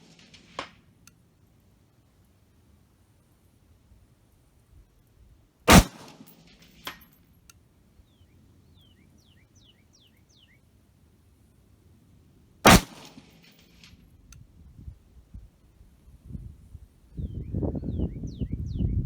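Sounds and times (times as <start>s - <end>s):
rifle shots: 0.0s - 0.8s, 5.7s - 7.0s, 12.7s - 13.9s
distant bullet clang on steel: 5.7s - 7.5s.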